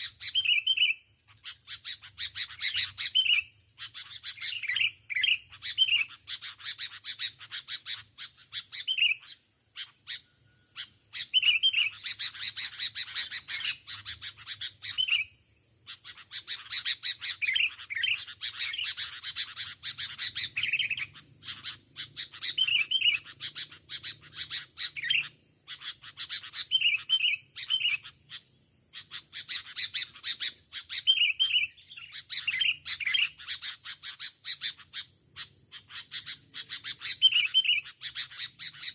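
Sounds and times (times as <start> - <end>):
bulbuls chattering and calling: 0.0 - 15.2, 15.8 - 38.9
bird whistled phrases: 0.1 - 1.0, 11.2 - 15.3, 16.6 - 25.4, 26.3 - 28.1, 29.4 - 34.7, 36.7 - 38.9.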